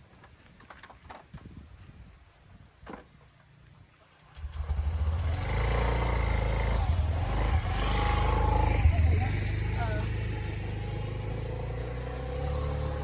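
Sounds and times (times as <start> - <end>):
vehicle engine low pulsing rumble: 4.4 - 13.0.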